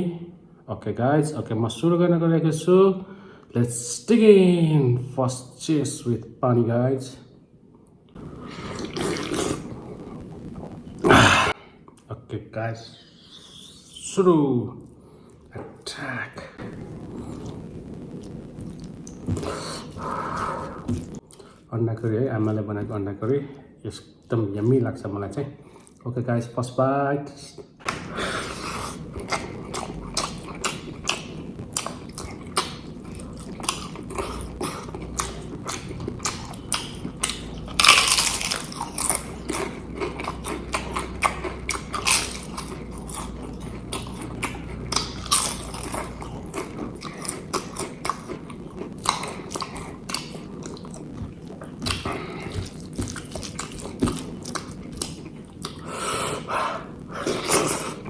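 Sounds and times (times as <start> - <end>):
wet chewing and lip smacks: 28.7 - 55.9.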